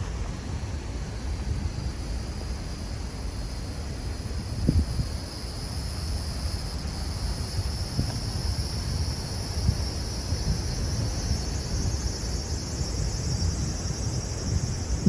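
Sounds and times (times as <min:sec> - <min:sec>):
strong wind buffeting microphone: 0:04.3 - 0:05.3, 0:07.1 - 0:15.0.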